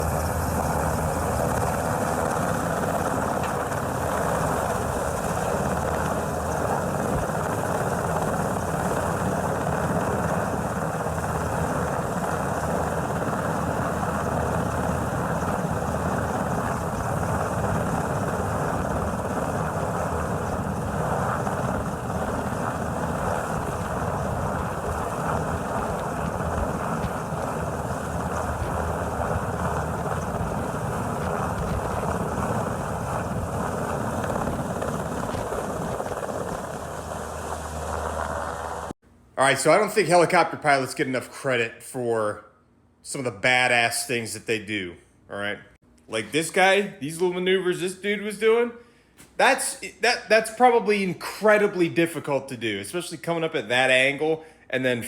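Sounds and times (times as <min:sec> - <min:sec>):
helicopter rotor drone: 0:00.0 - 0:39.0.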